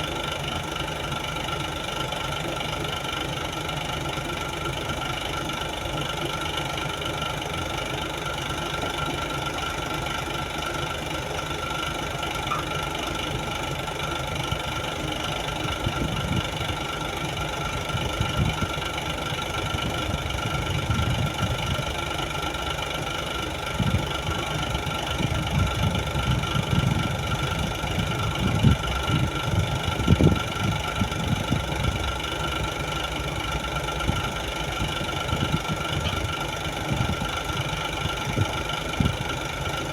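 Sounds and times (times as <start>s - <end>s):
crane diesel engine humming: 0.0s - 39.9s
low machine thumps and rumbles: 23.8s - 24.4s, 25.1s - 32.2s.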